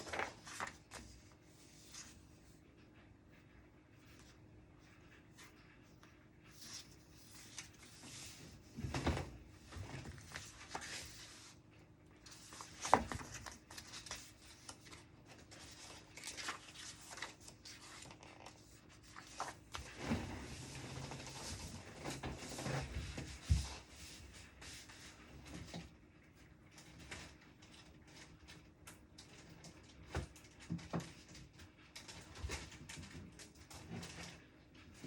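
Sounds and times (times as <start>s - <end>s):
paper rustling: 0.0s - 2.2s, 6.5s - 25.8s.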